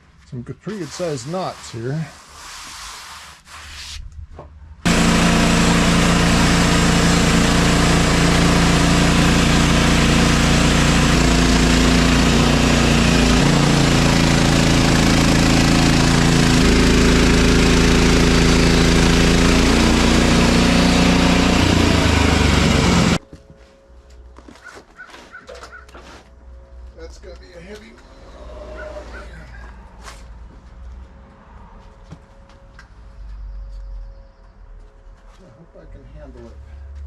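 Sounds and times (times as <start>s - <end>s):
band saw blade cutting log: 0.7s - 3.7s, 4.9s - 23.2s
sawmill gas engine running hard: 4.9s - 23.2s.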